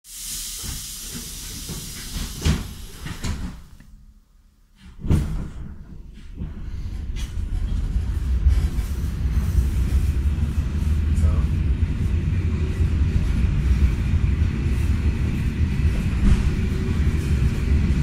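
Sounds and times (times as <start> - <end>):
hiss inside train: 0.0 - 3.7, 7.2 - 18.0
train rumble moving off: 0.1 - 3.8, 5.0 - 18.0
heavy thump: 16.0 - 16.9.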